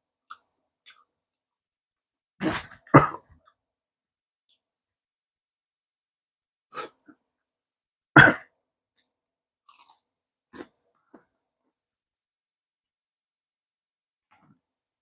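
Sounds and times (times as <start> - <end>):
loud crunchy bite: 2.4 - 3.1, 9.7 - 10.0
bites and chewing: 9.7 - 11.6.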